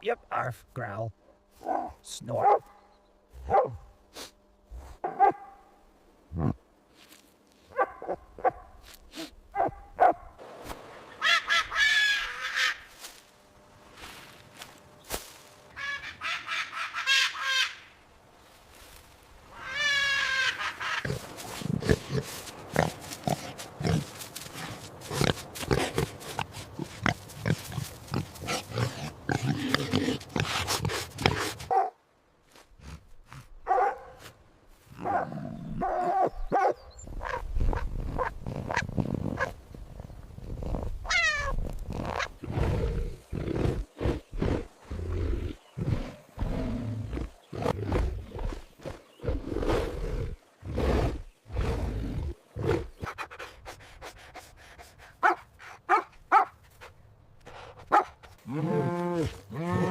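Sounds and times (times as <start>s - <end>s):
pigs grunting: 6.3s - 6.6s, 19.7s - 31.7s, 40.4s - 54.2s, 57.5s - 59.9s.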